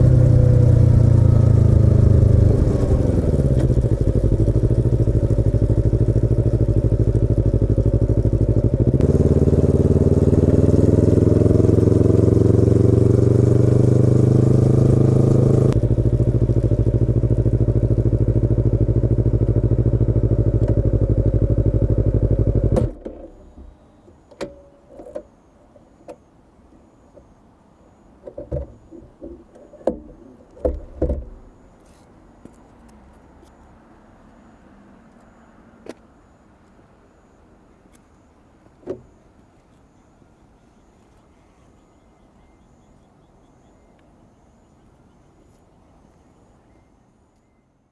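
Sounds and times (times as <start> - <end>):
motorcycle engine idling: 0.0 - 23.7.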